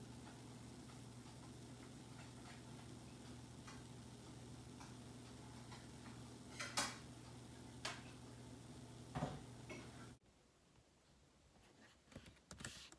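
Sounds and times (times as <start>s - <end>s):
low steady hum: 0.0s - 10.2s.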